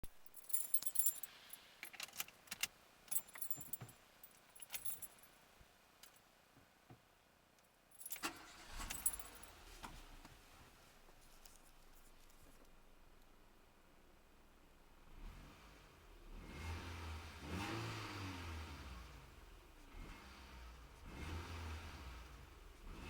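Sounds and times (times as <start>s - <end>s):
car keys jangling: 0.3s - 5.3s, 7.9s - 9.6s.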